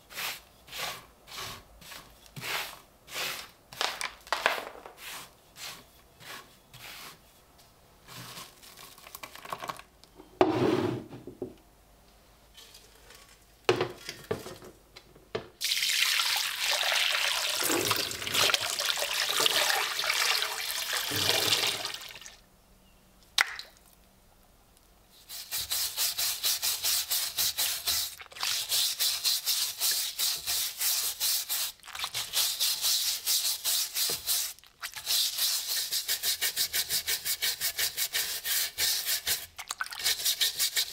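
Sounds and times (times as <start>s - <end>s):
knocks and handling noises: 3.8s - 5.0s, 12.5s - 15.6s
water running: 15.6s - 22.4s.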